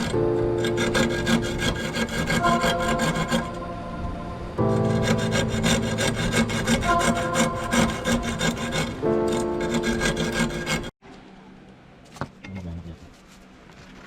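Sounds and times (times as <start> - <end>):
rasp filing strokes: 0.0 - 3.6, 4.6 - 11.0.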